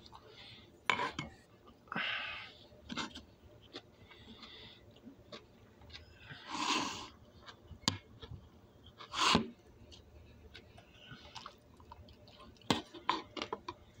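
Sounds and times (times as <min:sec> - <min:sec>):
person chewing broccoli: 0:02.9 - 0:13.9.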